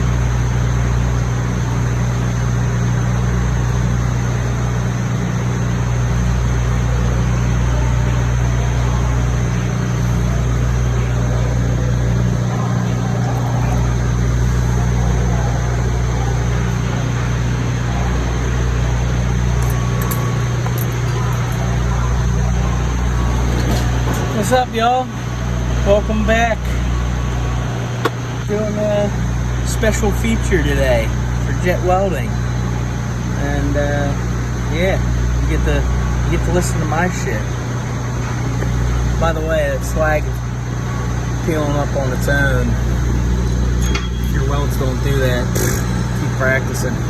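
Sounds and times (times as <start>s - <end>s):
low electrical hum: 0.0s - 47.0s.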